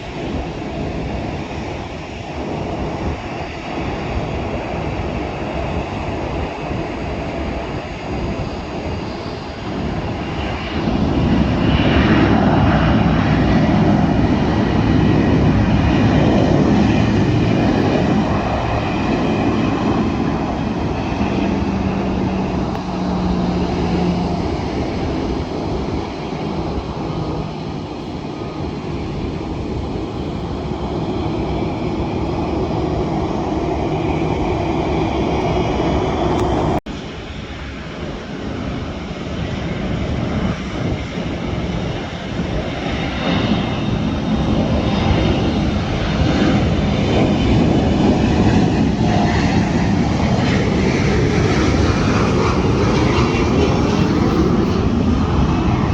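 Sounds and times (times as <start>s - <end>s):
jet engines passing: 0.0s - 55.9s.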